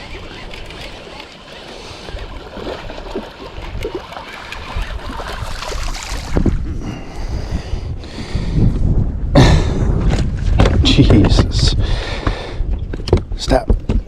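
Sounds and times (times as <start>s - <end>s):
splashing lapping water: 0.0s - 6.6s
wind buffeting microphone: 0.0s - 14.0s.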